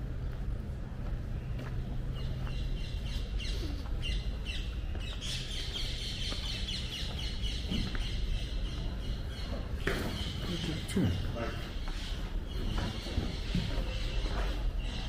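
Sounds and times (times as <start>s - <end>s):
steady low rumble: 0.0s - 15.0s
small birds chirping: 1.1s - 15.0s.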